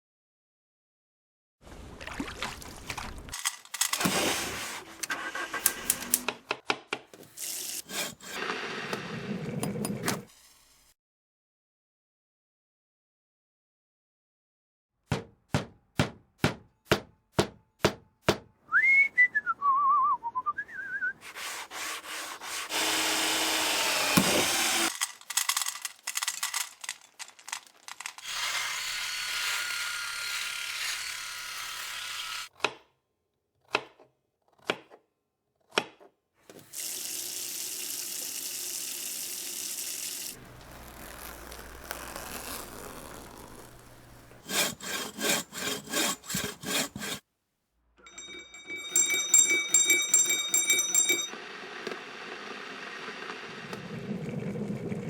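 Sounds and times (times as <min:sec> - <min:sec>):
rasping rubbing noise: 0:21.2 - 0:22.7, 0:40.4 - 0:47.2.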